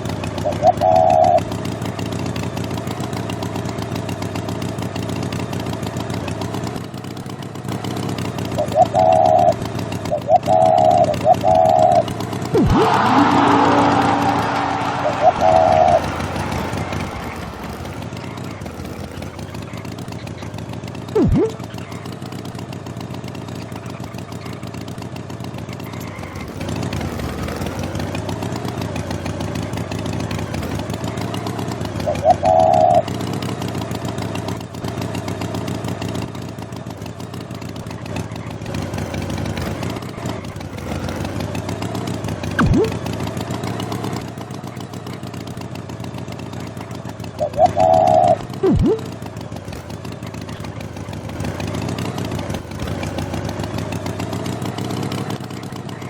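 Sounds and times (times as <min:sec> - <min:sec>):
engine running: 0:00.0 - 0:56.0
falling whistle tone: 0:10.4 - 0:17.8, 0:42.6 - 0:43.0, 0:47.4 - 0:49.2
short high tone: 0:21.2 - 0:21.6, 0:42.6 - 0:43.0, 0:47.5 - 0:49.0.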